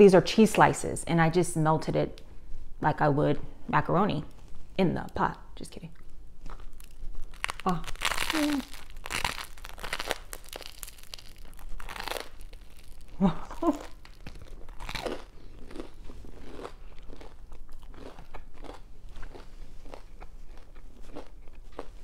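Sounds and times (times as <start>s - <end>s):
bread crust crunching: 6.4s - 22.0s
person humming: 7.7s - 8.8s.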